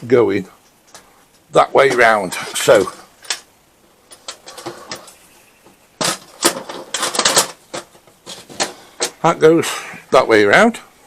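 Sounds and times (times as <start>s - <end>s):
knocks and clatters on workbench: 6.0s - 9.2s.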